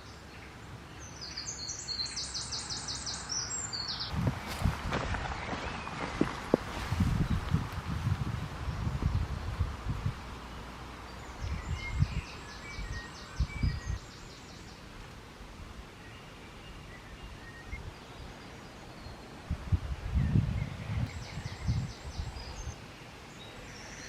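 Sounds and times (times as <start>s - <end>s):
birds chirping: 0.0s - 7.6s, 10.1s - 15.0s, 15.9s - 24.0s
footsteps on leaf litter: 4.1s - 7.6s.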